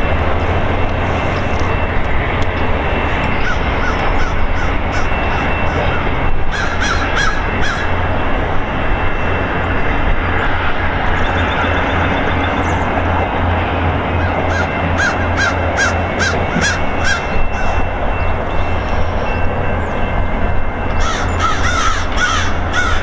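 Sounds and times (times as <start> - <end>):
low hum: 0.0 - 23.0
train rumble: 0.0 - 23.0
harsh bird calls: 14.1 - 18.4.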